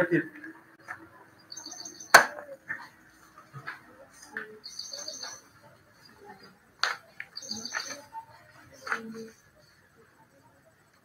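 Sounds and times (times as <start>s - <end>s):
pens and paper rustling: 6.3s - 9.8s.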